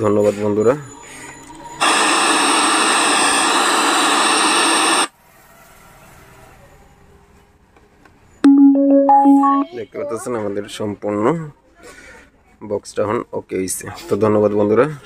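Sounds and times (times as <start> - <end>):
chime-like tones: 8.4 - 9.9.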